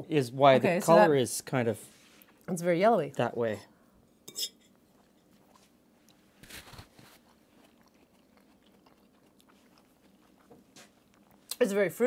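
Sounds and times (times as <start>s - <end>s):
faint chewing: 4.6s - 11.7s
pastry crunch: 4.9s - 11.6s.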